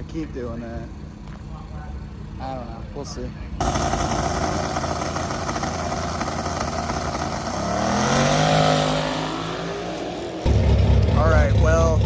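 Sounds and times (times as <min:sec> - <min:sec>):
drag racing engine accelerating: 0:03.6 - 0:12.0
steady rushing noise: 0:03.6 - 0:12.0.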